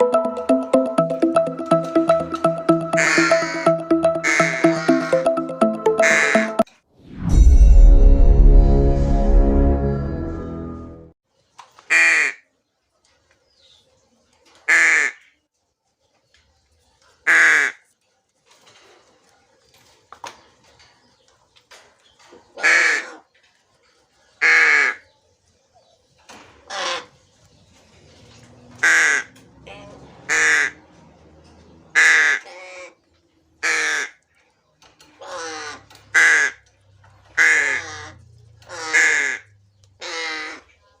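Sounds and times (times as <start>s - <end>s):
crow cawing: 35.2s - 36.6s, 37.4s - 40.7s.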